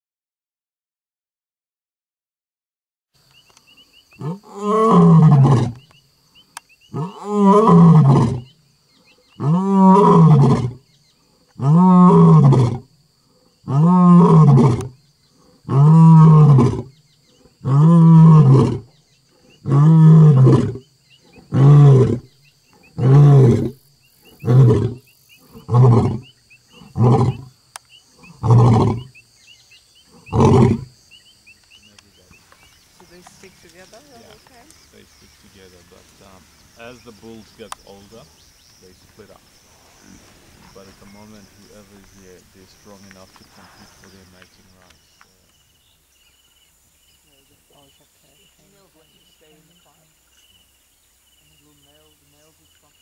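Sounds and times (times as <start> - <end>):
lion roaring and grunting: 4.2 - 5.8, 6.9 - 8.5, 9.4 - 10.8, 11.6 - 12.8, 13.6 - 16.9, 17.6 - 27.5, 28.2 - 29.2, 30.1 - 30.9.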